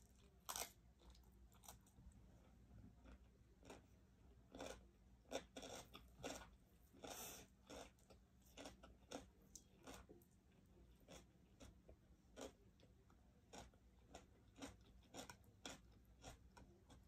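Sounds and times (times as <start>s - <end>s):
chewing with soft smacks: 0.0s - 17.0s.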